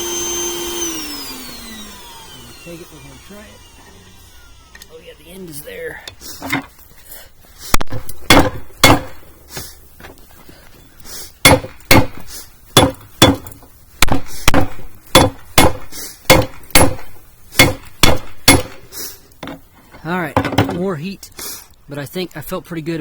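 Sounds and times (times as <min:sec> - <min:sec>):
hammer striking steel on anvil: 0:07.8 - 0:09.2, 0:11.4 - 0:12.2, 0:12.8 - 0:18.8.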